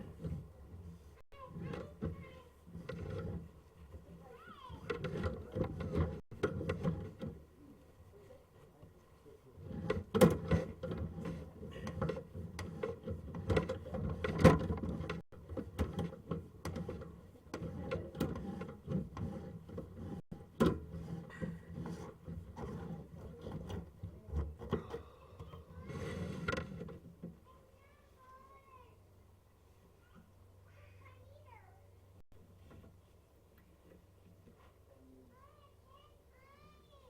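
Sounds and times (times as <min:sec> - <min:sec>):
cable knocking and rattling: 0:00.0 - 0:07.5, 0:09.6 - 0:27.4.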